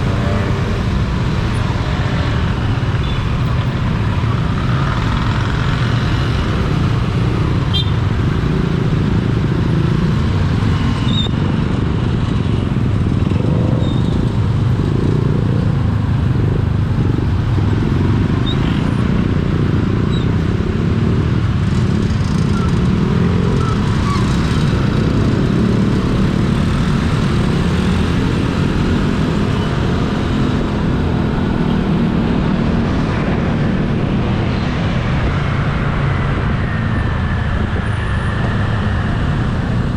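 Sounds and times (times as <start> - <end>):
rumble of tyres and wind: 0.0 - 39.9
vehicle engines running: 0.0 - 39.9.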